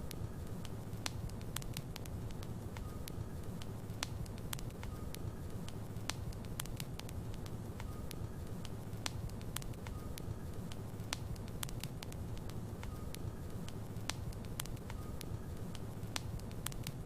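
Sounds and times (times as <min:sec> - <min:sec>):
logs crackling and popping: 0:00.0 - 0:17.0
low rumble of flames: 0:00.0 - 0:17.0
faint whistles: 0:04.8 - 0:05.8, 0:07.8 - 0:08.7, 0:09.8 - 0:10.9, 0:12.8 - 0:13.8, 0:14.8 - 0:16.4.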